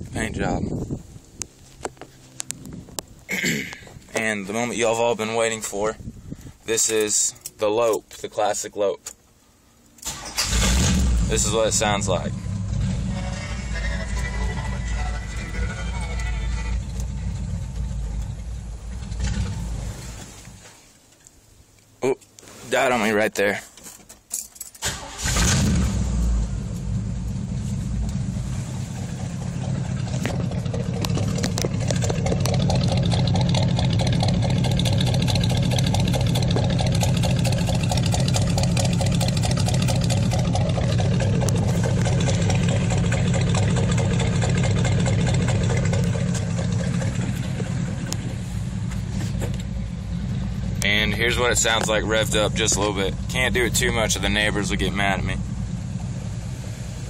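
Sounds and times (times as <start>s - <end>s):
engine idling with uneven lope: 9.1s - 57.0s
engine starting: 10.0s - 11.6s, 24.8s - 26.5s.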